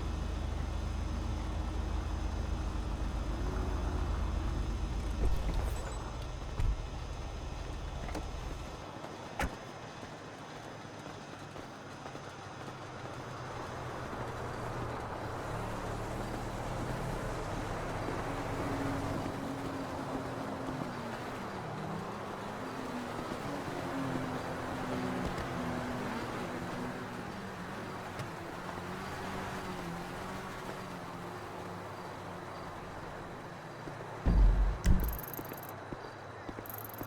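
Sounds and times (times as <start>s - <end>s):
car engines running: 0.0s - 9.6s, 11.2s - 37.0s
sharp click: 34.3s - 35.7s.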